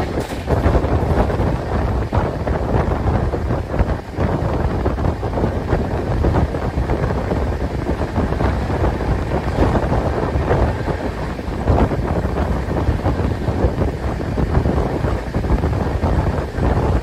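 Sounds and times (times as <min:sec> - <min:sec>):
train rumbling at speed: 0:00.0 - 0:17.0
wind buffeting a microphone: 0:00.0 - 0:17.0.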